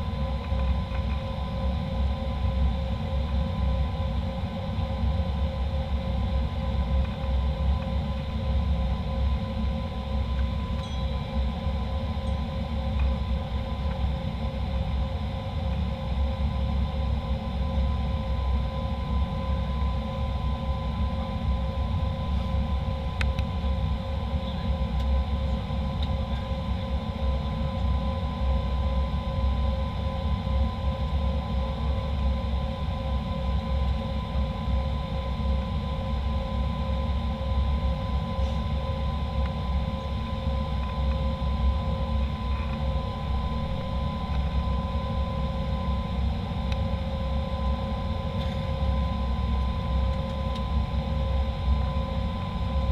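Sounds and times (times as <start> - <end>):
jet cabin low rumble: 0.0 - 52.9
steady whining tones: 33.2 - 52.9.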